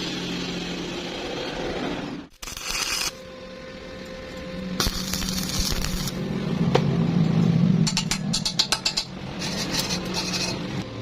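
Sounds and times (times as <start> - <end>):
arc welding crackling and hissing: 2.3 - 3.3, 4.3 - 6.2.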